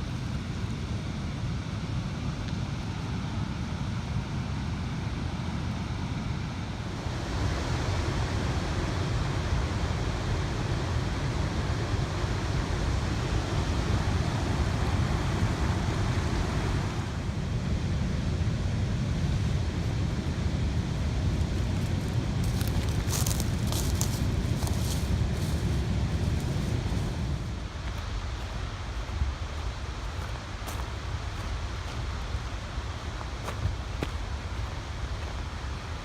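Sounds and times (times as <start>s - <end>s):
steady low rushing noise: 12.3s - 36.0s.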